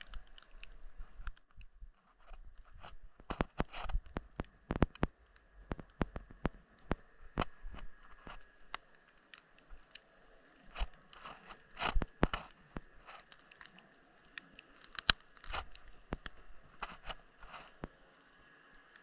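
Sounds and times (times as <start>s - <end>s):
faint steady tone: 0.0s - 19.0s
underwater clicks and crackles: 0.0s - 19.0s.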